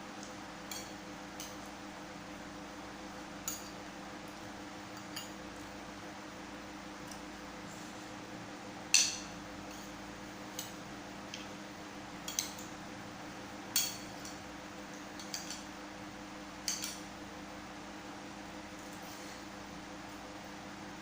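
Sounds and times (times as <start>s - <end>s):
cutlery clinking on dishes: 16.6s - 17.0s.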